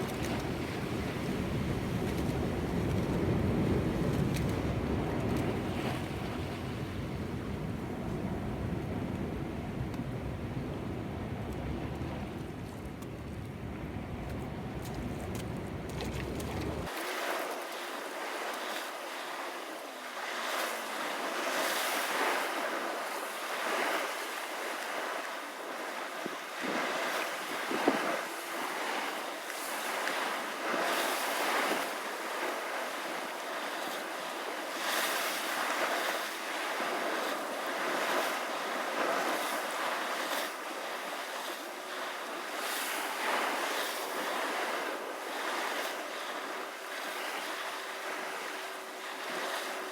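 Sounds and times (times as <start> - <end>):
wind on microphone: 0.0 - 16.9, 26.2 - 28.2
sea surf washing: 0.0 - 49.9.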